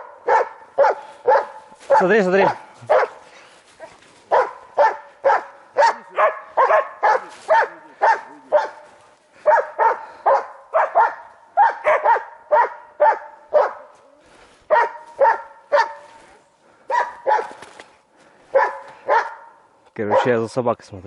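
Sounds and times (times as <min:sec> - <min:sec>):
dog barking: 0:00.0 - 0:14.0, 0:14.7 - 0:16.3, 0:16.9 - 0:17.7, 0:18.5 - 0:20.4.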